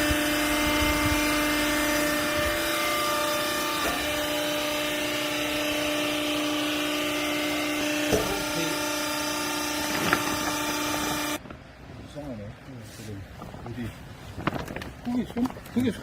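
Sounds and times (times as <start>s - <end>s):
hydraulic motor and pump humming: 0.0s - 11.8s.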